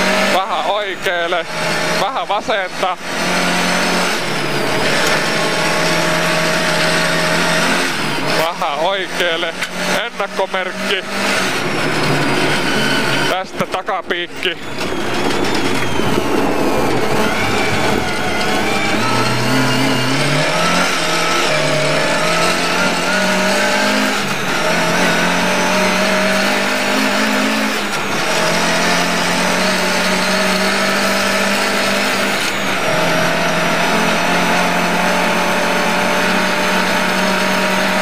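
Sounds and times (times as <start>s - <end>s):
car engine under hard throttle: 0.0s - 38.0s.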